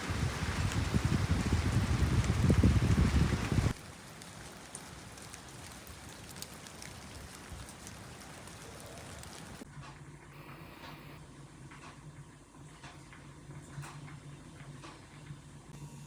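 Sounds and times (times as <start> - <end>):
light rain falling: 0.0 - 9.7
small drips: 0.0 - 9.7.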